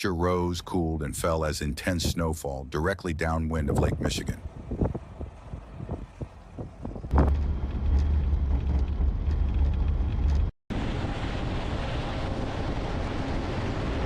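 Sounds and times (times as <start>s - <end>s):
wind buffeting microphone: 3.5s - 14.0s
steady rushing noise: 3.7s - 14.0s.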